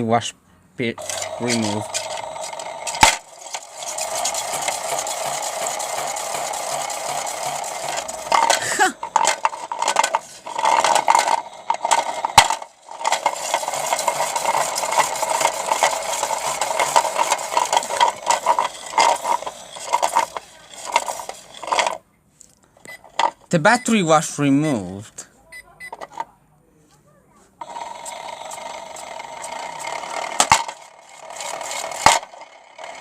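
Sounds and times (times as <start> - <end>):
bricks rattling in drum: 1.0 - 22.0, 27.6 - 33.0
small motor whirring: 1.0 - 22.0, 27.6 - 33.0.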